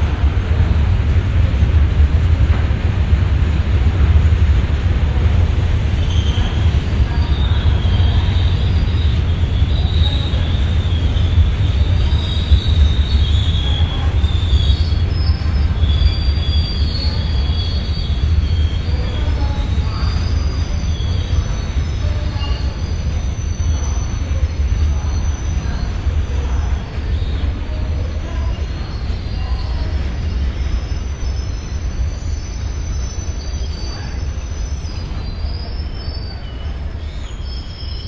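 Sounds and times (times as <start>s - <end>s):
train wheels rumbling on rails: 0.0s - 38.0s
high wheel squeal: 6.0s - 25.9s, 28.4s - 38.0s.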